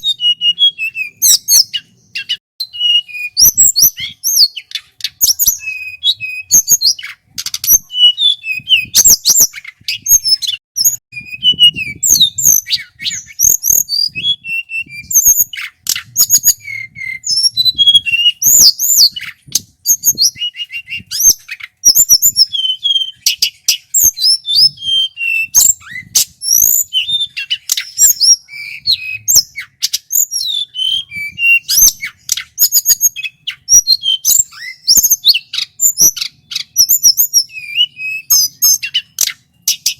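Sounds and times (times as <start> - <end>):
bird singing whistled notes: 0.0 - 39.9
sharp clicking bird notes: 4.0 - 6.0, 6.8 - 7.9, 25.8 - 30.8, 38.2 - 39.9.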